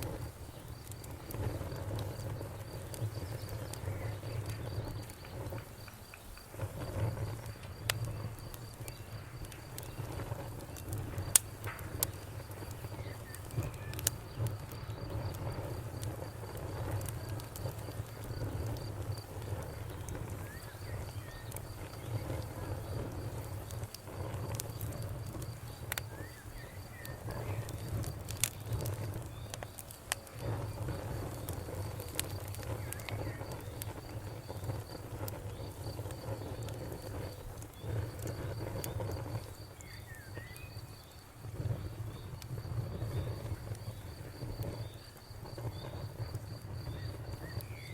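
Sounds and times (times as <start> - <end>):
low rumble of flame: 0.0 - 47.9
wood fire crackling and popping: 0.0 - 47.9
cricket chirping: 0.1 - 47.9.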